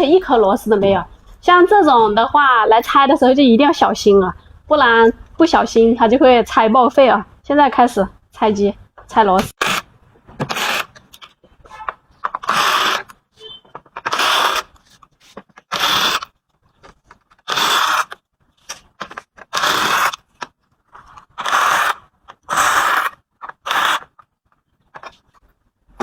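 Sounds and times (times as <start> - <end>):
screwdriver whirring and ratcheting: 12.3 - 13.2, 14.0 - 14.8, 15.6 - 16.3, 19.4 - 20.2, 21.4 - 24.2.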